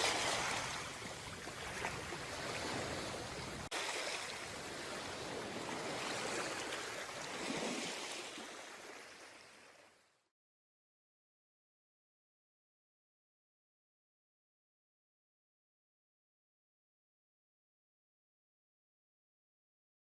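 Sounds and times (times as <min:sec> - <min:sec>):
sea water washing and surging: 0:00.0 - 0:10.1.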